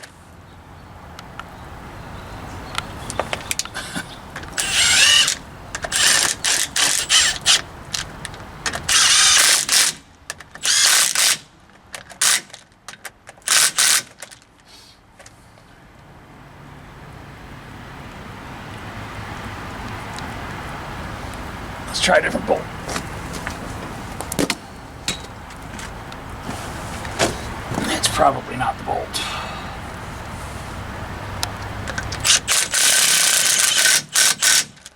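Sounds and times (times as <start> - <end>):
ratchet wrench clicking: 4.6 - 8.1, 8.7 - 10.0, 10.6 - 11.4, 13.5 - 14.3, 31.9 - 34.9.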